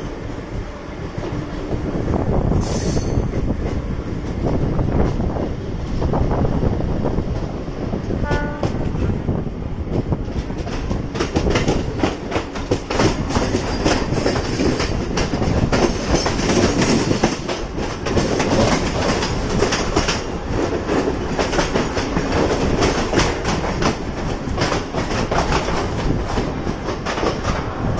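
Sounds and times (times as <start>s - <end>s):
electric train rumbling: 0.0s - 27.9s
short high train hoot: 8.2s - 8.8s
wheels clicking over rail joints: 10.0s - 27.9s.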